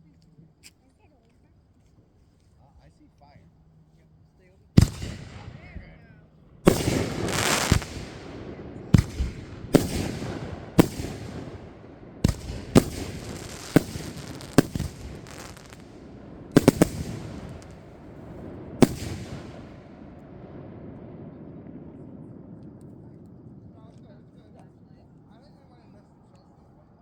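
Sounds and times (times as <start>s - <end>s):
fireworks banging: 4.8s - 21.8s
fireworks crackling: 4.8s - 23.1s.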